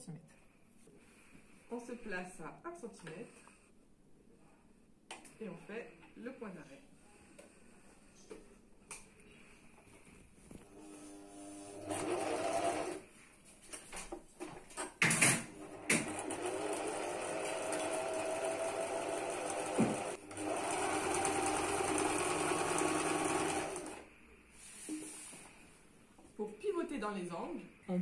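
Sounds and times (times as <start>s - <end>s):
electric sewing machine stitching: 10.7s - 13.0s, 15.4s - 24.1s.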